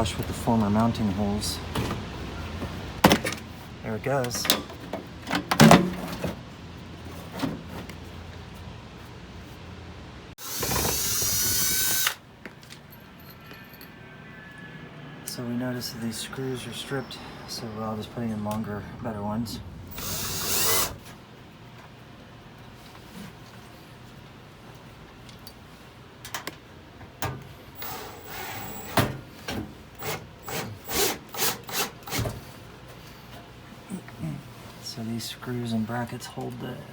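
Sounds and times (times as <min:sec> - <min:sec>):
screw turning rasps: 0:10.4 - 0:12.2, 0:19.9 - 0:21.0.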